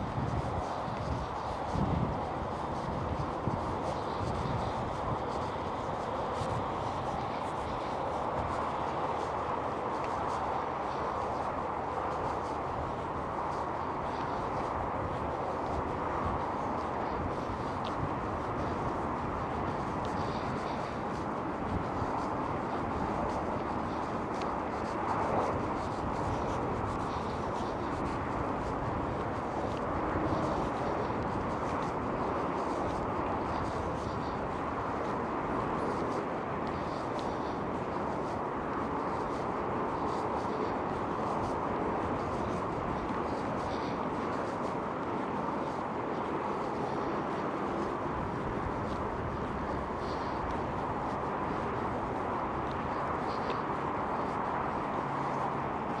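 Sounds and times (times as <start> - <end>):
distant road traffic drone: 0.1 - 56.0.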